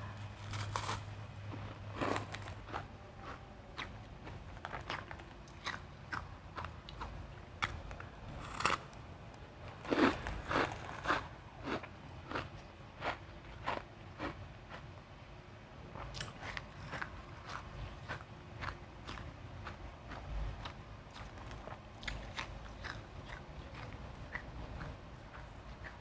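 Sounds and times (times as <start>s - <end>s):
ice crunched between teeth: 0.4s - 1.1s.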